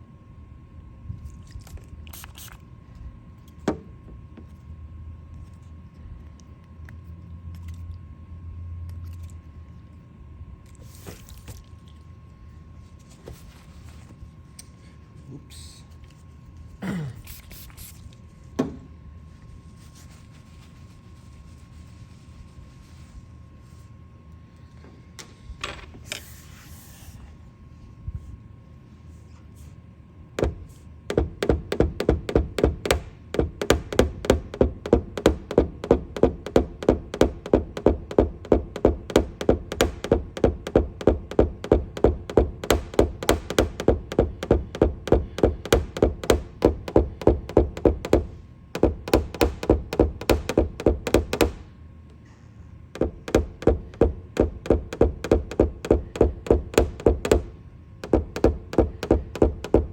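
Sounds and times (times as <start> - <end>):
hammer tapping on metal: 30.4 - 51.6, 53.0 - 59.9.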